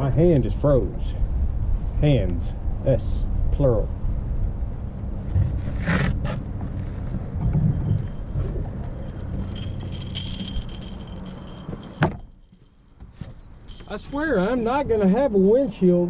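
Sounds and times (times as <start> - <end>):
steady low rumble: 0.0 - 5.8, 6.4 - 12.4
fishing tackle rustling and scraping: 5.5 - 14.6.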